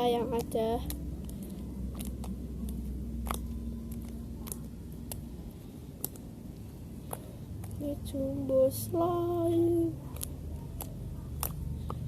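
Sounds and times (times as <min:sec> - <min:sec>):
low background hum: 0:00.0 - 0:12.0
sticky clicks of squeezed slime: 0:00.1 - 0:07.8, 0:10.0 - 0:12.0.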